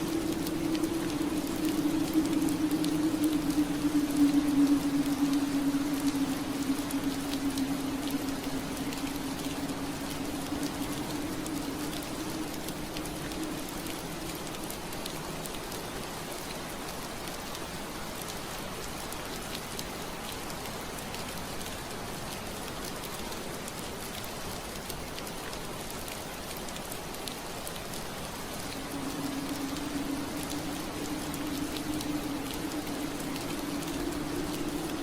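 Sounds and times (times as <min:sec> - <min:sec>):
low steady hum: 0:00.0 - 0:16.4, 0:28.5 - 0:35.0
rain pattering on window glass: 0:00.0 - 0:35.0.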